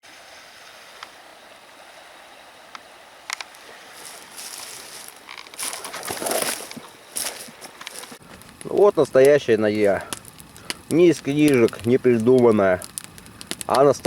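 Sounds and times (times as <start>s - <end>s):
log fire crackling and hissing: 0.1s - 14.0s
sharp pops: 4.4s - 14.0s.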